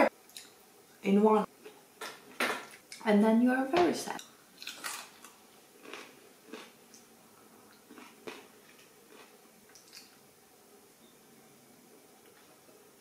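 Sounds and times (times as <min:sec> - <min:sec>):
faint chewing: 0:04.2 - 0:10.2.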